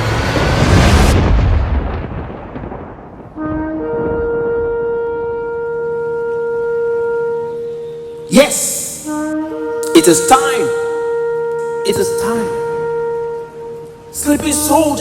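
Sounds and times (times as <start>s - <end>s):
deep rumbling boom: 0.0s - 4.8s
horn blast: 3.4s - 15.0s.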